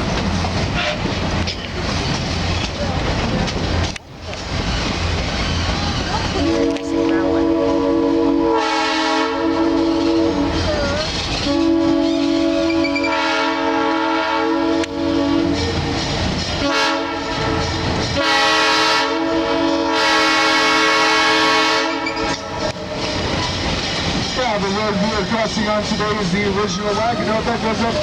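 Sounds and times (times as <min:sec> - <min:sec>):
train rumbling on rails: 0:00.0 - 0:28.0
locomotive whistle blasts: 0:06.4 - 0:10.6, 0:11.4 - 0:15.7, 0:16.6 - 0:23.0.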